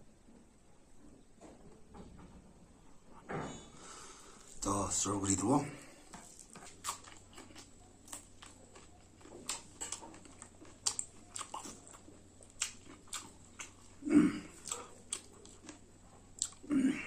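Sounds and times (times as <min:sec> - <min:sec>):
chewing with wet mouth smacks: 0:06.2 - 0:16.7.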